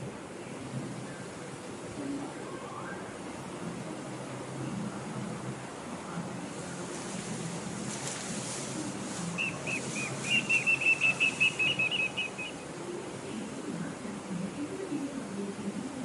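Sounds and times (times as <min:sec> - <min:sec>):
steady background hiss: 0:00.0 - 0:16.0
bird whistling trill: 0:09.4 - 0:12.6.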